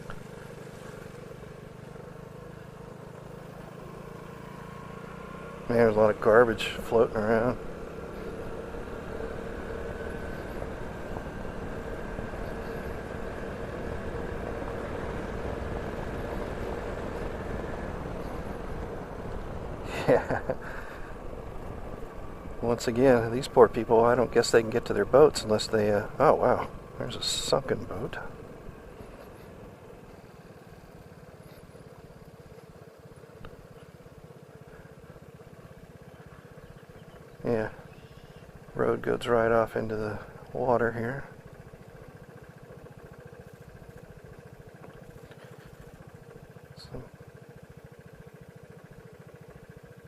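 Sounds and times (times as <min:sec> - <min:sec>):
road and wind rumble: 0:00.0 - 0:50.0
scooter engine running: 0:00.0 - 0:50.0
scooter engine putter: 0:40.4 - 0:50.0.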